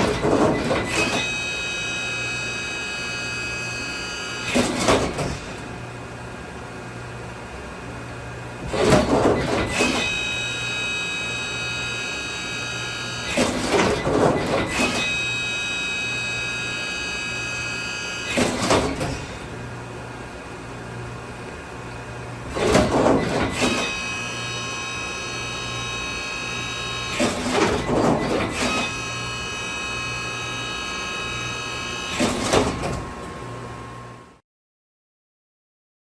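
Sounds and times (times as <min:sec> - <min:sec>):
machine clattering movement: 0:00.0 - 0:01.2, 0:08.6 - 0:10.2, 0:13.3 - 0:15.2, 0:18.3 - 0:19.4, 0:22.5 - 0:24.0, 0:27.1 - 0:29.0
high machine whine: 0:00.1 - 0:04.9, 0:09.3 - 0:19.9, 0:22.8 - 0:32.6.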